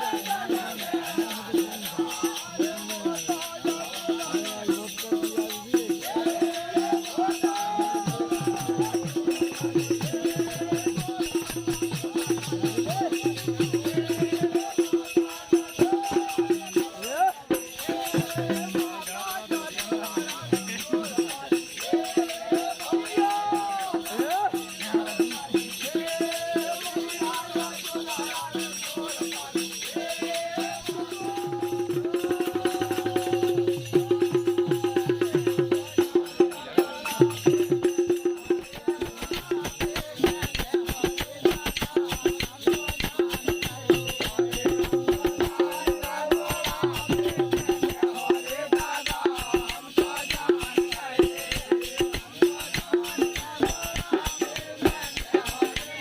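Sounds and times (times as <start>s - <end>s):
fast drumming: 0.0s - 56.0s
jingling rattling percussion: 0.0s - 56.0s
person singing: 29.3s - 56.0s.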